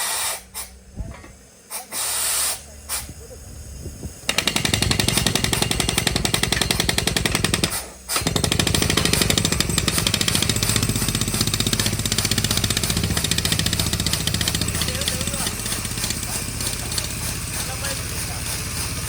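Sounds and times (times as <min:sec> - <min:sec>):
drilling rig hammering: 0:04.3 - 0:19.0.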